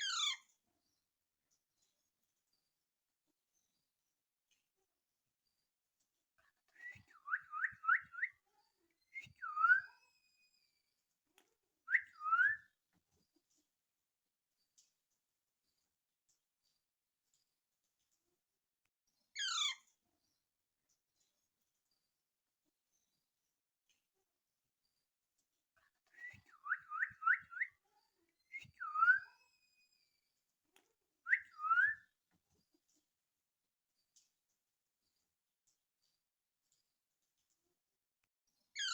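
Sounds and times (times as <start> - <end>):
short whistled chirps: 6.7 - 8.4, 9.1 - 10.3, 11.9 - 12.7, 26.1 - 27.8, 28.5 - 30.0, 31.3 - 32.1.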